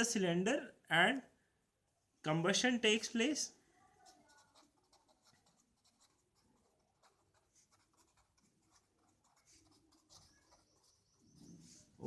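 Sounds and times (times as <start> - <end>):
pen scratching while writing: 4.0 - 11.8.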